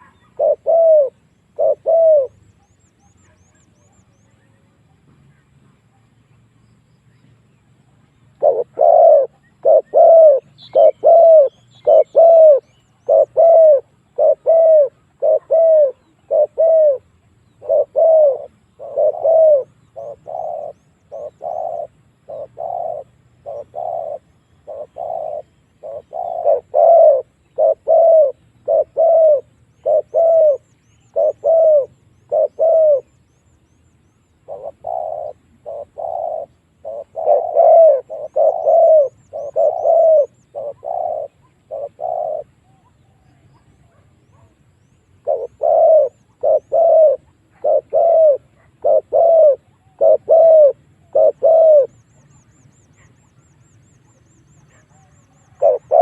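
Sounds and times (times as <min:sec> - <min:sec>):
dove cooing: 0:00.0 - 0:06.1, 0:07.9 - 0:56.0.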